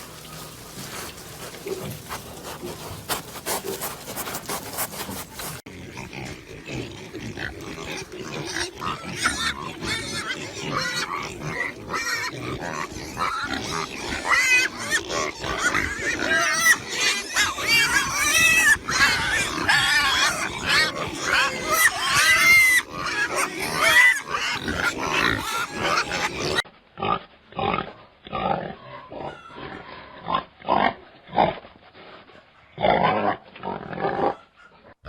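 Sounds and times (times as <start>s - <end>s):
pigs shuffling: 0.0s - 26.6s
pigs grunting: 0.6s - 35.0s
pigs squealing: 0.9s - 31.5s, 32.8s - 35.0s.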